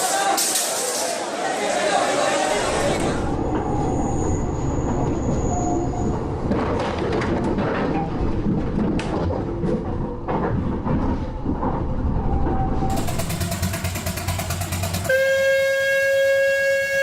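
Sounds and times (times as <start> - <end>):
train clattering over track: 12.9 - 15.6
steam whistle blast: 14.9 - 17.0.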